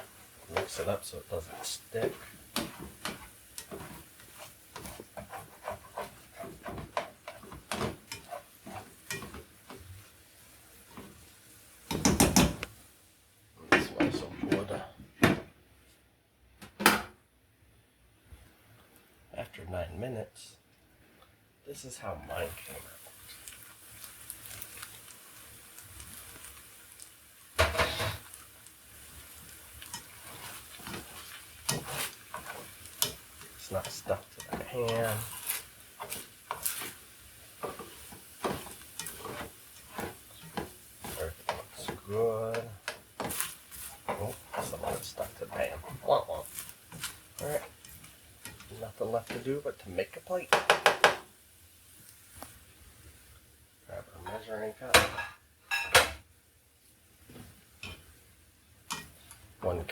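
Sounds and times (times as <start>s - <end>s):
utensil scraping a pan: 0.0s - 10.1s, 27.6s - 28.4s, 29.0s - 51.0s
food sizzling: 0.0s - 13.5s, 21.8s - 59.9s.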